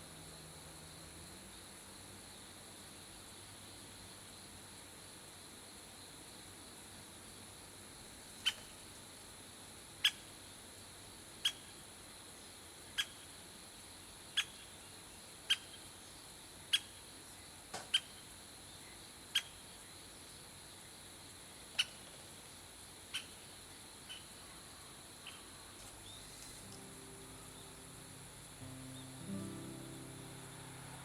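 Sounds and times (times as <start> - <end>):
faint hiss: 0.0 - 31.0
bird call notes: 26.2 - 31.0
thin high whine: 26.4 - 31.0.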